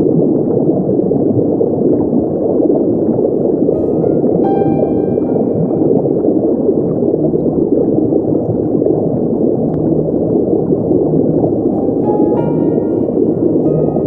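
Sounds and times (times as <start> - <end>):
underwater rush and gurgle: 0.0 - 14.0
sustained music notes: 3.7 - 6.8, 11.4 - 14.0.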